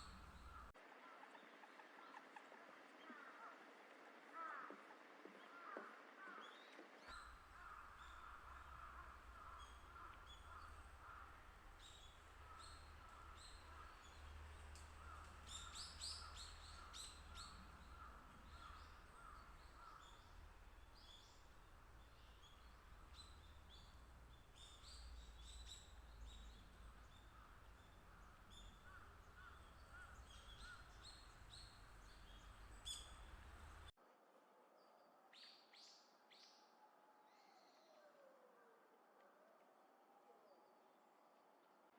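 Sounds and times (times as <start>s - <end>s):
wild birds calling: 0.0s - 0.7s, 5.4s - 33.9s.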